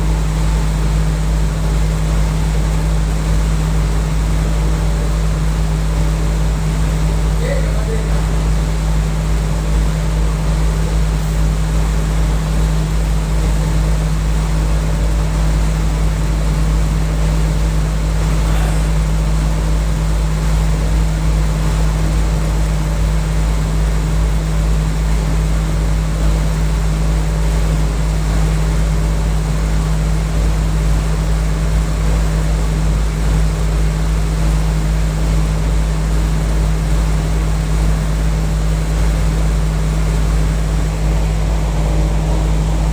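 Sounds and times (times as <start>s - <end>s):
air conditioner humming: 4.8s - 20.4s, 39.3s - 42.9s.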